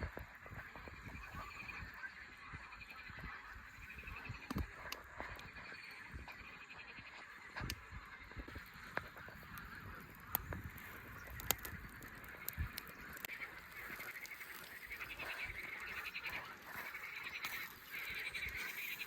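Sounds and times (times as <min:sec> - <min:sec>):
rapidly pulsed animal calls: 0:00.1 - 0:19.0
sharp clicks: 0:08.9 - 0:16.4.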